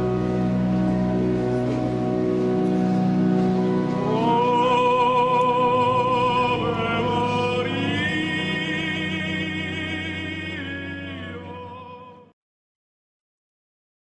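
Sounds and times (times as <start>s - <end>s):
held accompaniment chords: 0.0s - 12.3s
person singing with vibrato: 3.9s - 12.3s.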